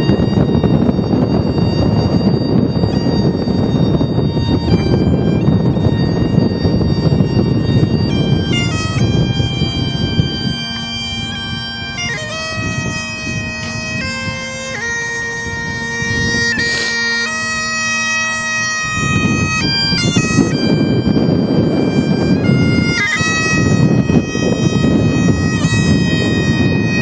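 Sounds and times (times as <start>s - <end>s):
bagpipes playing: 0.0s - 27.0s
wind buffeting microphone: 0.0s - 27.0s.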